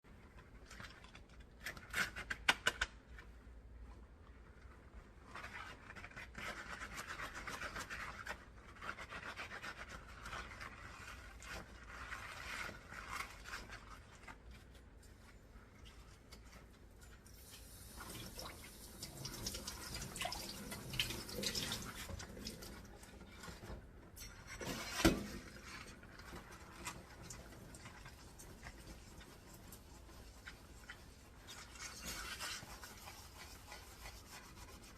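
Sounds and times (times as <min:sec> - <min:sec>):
sponge scrubbing dishes: 0:04.6 - 0:34.9
water running: 0:17.2 - 0:23.7.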